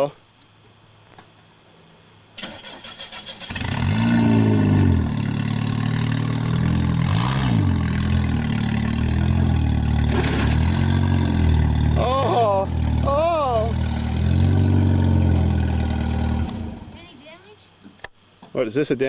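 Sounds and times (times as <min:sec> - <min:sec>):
car starter cranking: 0:02.4 - 0:03.8
car engine revving and running: 0:03.2 - 0:17.1.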